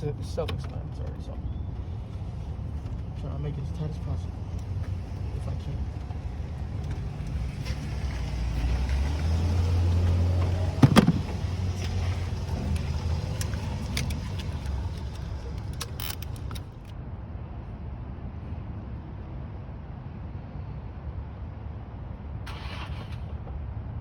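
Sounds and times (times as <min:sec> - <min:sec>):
low vehicle rumble: 0:00.0 - 0:17.9.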